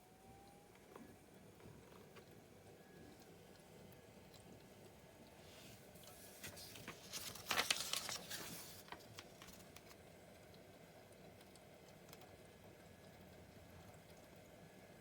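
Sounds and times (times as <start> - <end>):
crinkling and rustling: 5.7 - 10.0.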